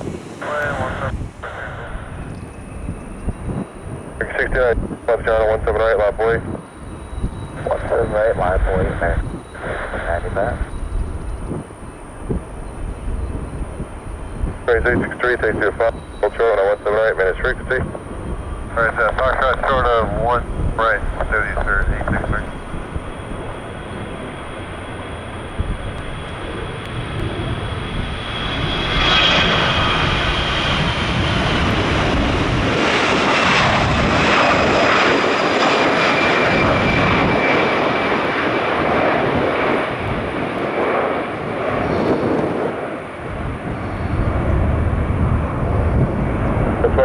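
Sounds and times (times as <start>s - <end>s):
high jet engine whine: 0.0s - 47.0s
jet engine roar: 0.0s - 47.0s.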